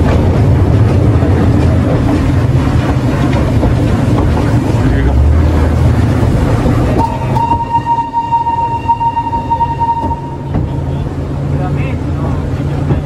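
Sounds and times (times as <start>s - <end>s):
train running rumble: 0.0s - 13.0s
train whistle: 7.0s - 10.6s.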